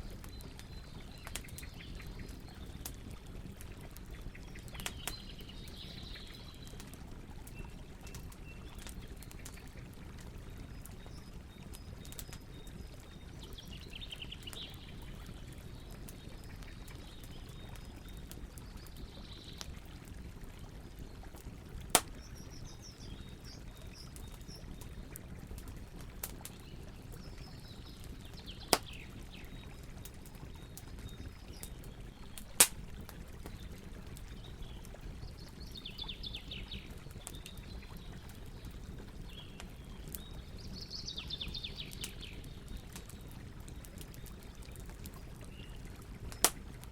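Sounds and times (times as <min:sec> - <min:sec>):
campfire burning: 0:00.0 - 0:46.9
wood crackling pops: 0:21.9 - 0:22.4, 0:28.6 - 0:29.0, 0:32.4 - 0:33.6, 0:46.3 - 0:46.9.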